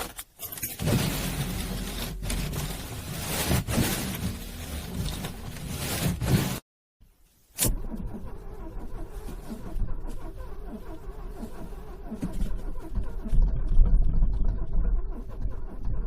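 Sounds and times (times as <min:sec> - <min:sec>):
car starter motor cranking: 0:07.6 - 0:16.0.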